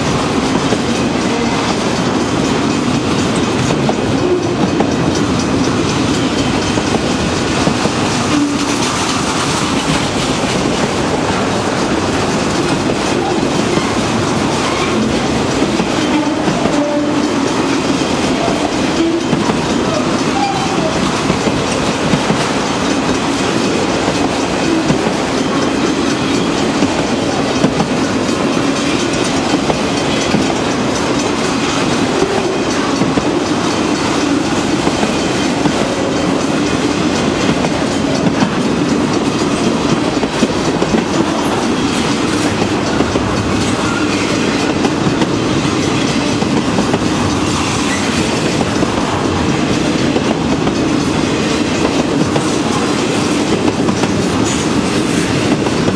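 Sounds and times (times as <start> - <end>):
freight train rolling: 0.0 - 55.9
wheels clicking over rail joints: 0.0 - 55.9.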